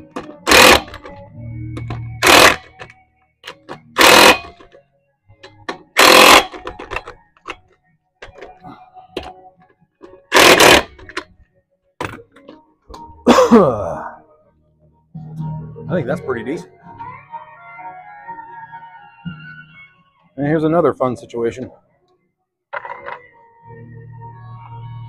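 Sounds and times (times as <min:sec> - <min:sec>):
impact wrench bursts: 0:00.4 - 0:01.0, 0:02.2 - 0:02.7, 0:04.0 - 0:04.6, 0:06.0 - 0:06.9, 0:10.3 - 0:11.0.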